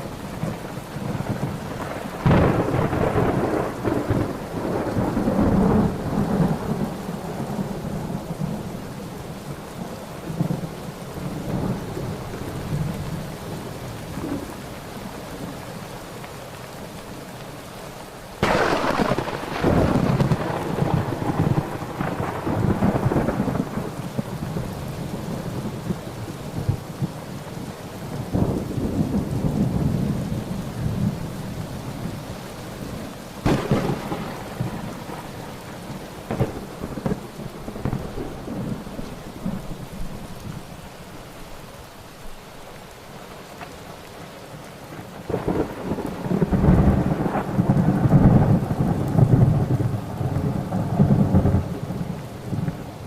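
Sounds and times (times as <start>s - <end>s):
steady rain: 0.0s - 53.0s
thunder rolling: 0.3s - 8.7s, 18.4s - 27.1s, 33.4s - 40.2s, 45.3s - 52.8s
sharp thunderclap: 2.2s - 7.0s, 18.4s - 24.3s, 33.4s - 35.6s, 36.2s - 39.6s.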